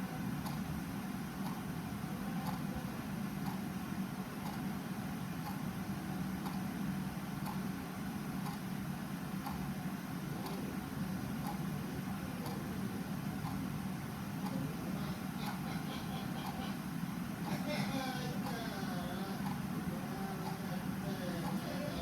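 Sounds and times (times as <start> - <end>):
clock ticking: 2.4 - 2.6, 4.4 - 4.6, 6.4 - 6.6, 8.4 - 8.6, 11.4 - 11.6, 19.4 - 19.6, 20.4 - 20.6, 21.4 - 21.7.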